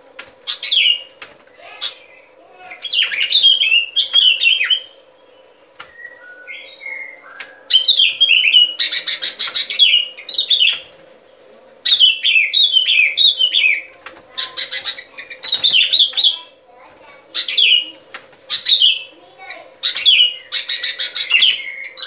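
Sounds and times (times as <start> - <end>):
bulbul song: 0.5 - 11.0, 11.8 - 16.6.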